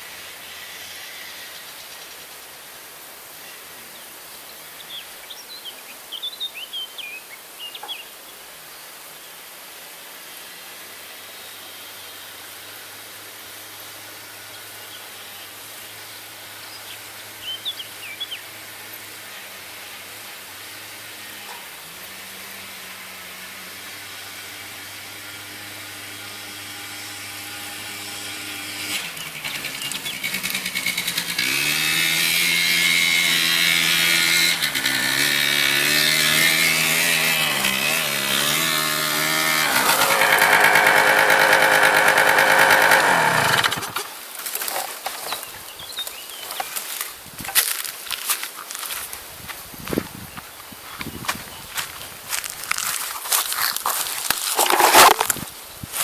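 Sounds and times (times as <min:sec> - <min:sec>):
small birds chirping: 0:03.4 - 0:08.9, 0:14.5 - 0:19.1, 0:43.6 - 0:47.2, 0:49.7 - 0:52.4
quad bike engine running: 0:19.9 - 0:44.7.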